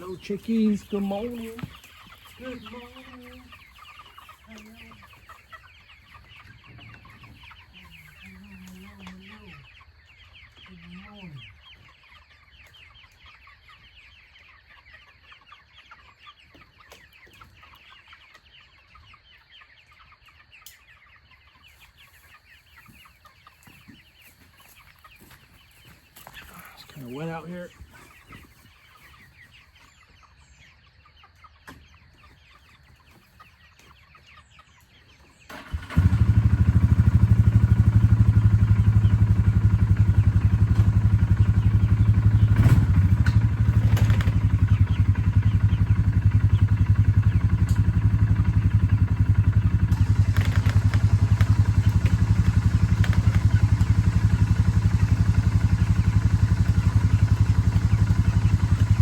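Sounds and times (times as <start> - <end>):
chickens clucking: 0.0 - 59.0
small engine running: 35.5 - 59.0.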